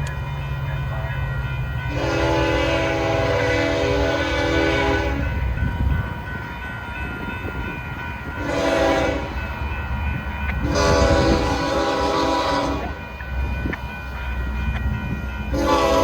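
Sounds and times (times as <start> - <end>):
freight train rumbling past: 0.0 - 16.0
locomotive air horn blasts: 1.9 - 5.4, 8.4 - 9.4, 10.6 - 13.1, 15.5 - 16.0.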